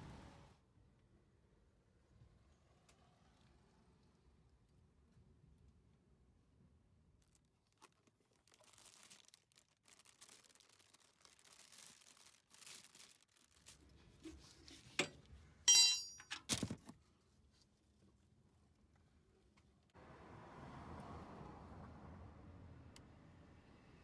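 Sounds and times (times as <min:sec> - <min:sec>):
rustling and crinkling: 0:07.2 - 0:15.3, 0:16.3 - 0:18.2
metallic clink: 0:15.7 - 0:16.5.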